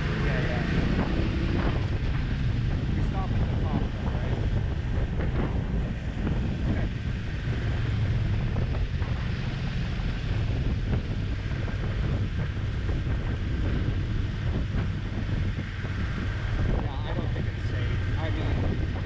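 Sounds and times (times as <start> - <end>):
motorcycle engine humming: 0.0 - 19.0
wind rushing over microphone: 0.0 - 19.0.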